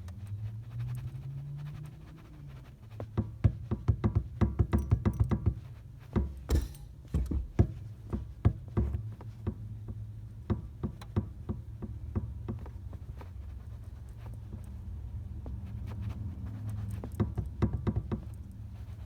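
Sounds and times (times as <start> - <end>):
car pedal knocks and taps: 3.0 - 14.8, 16.7 - 19.0.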